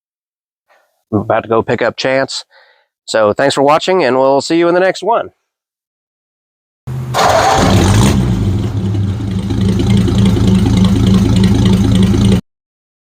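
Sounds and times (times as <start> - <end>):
truck engine starting and idling: 6.9 - 12.4.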